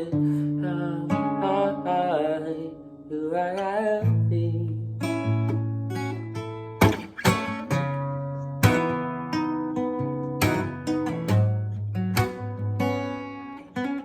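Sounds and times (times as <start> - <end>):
wordless singing voice: 0.0 - 5.2
guitar chords strummed: 0.0 - 14.0.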